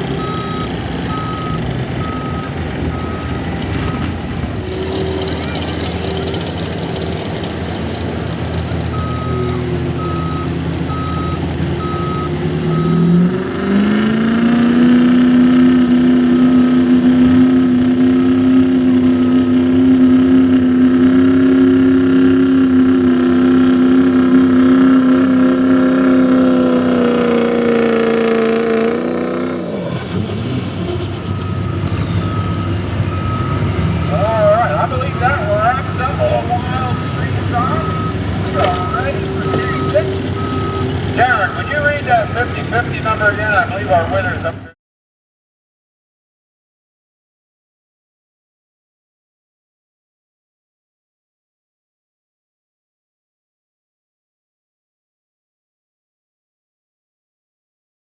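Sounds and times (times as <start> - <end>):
backup alarm beeping: 0.0 - 13.2, 21.9 - 43.3
diesel pickup engine revving: 0.0 - 44.7.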